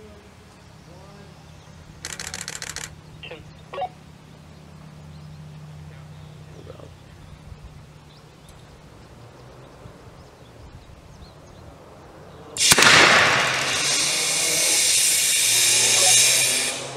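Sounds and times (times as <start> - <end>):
loud bang of rocket ignition: 12.6 - 16.9
rocket engine rushing hiss: 12.6 - 16.9.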